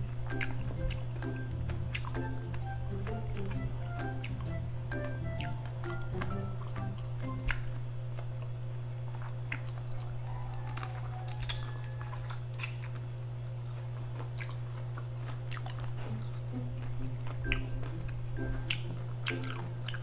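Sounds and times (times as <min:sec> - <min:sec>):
chewing on shrimp head: 0:00.0 - 0:20.0
steady low hum: 0:00.0 - 0:20.0.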